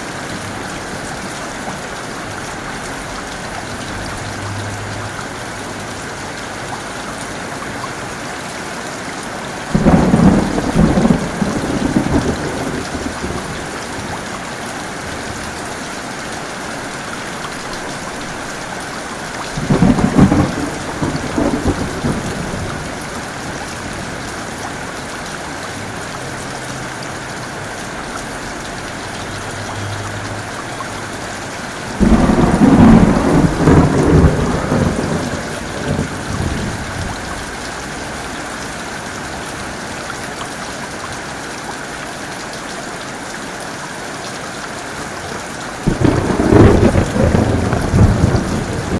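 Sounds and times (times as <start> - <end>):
heavy rain falling: 0.0 - 48.9
thunder claps: 9.7 - 14.2, 19.5 - 24.2, 31.9 - 37.5, 45.8 - 48.9.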